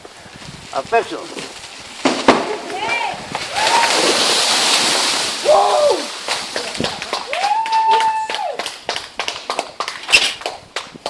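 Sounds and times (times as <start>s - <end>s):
breaking wood snapping and cracking: 1.3s - 7.6s
people shouting: 2.8s - 4.1s, 5.4s - 6.1s, 7.3s - 8.6s.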